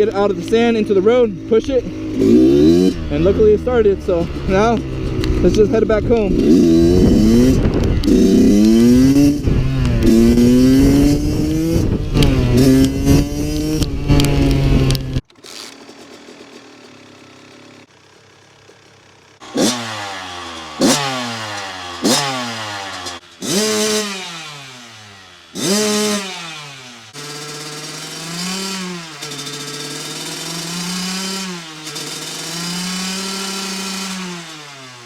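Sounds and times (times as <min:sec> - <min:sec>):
two-stroke motorbike engine revving: 0:00.0 - 0:35.0.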